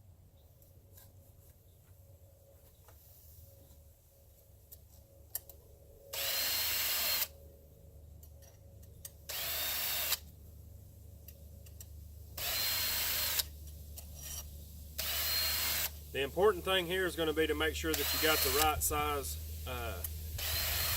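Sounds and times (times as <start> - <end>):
drill spinning sharpening stone: 12.4 - 13.4, 14.2 - 15.9, 17.9 - 18.7, 20.4 - 20.9.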